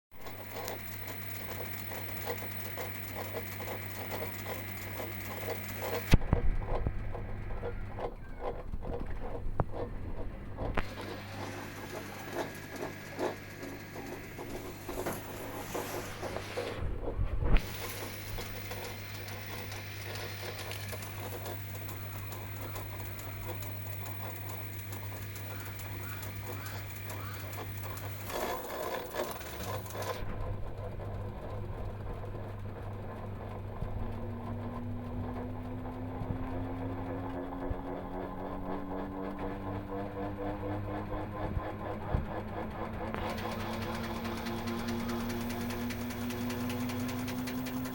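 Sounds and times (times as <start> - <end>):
washing machine motor grinding: 0.1 - 47.9
steady hum: 0.2 - 39.6, 41.9 - 47.9.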